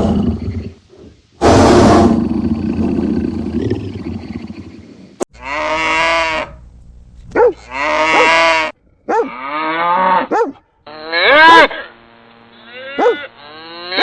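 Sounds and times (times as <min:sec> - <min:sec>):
rough animal roar: 0:07.6 - 0:10.3.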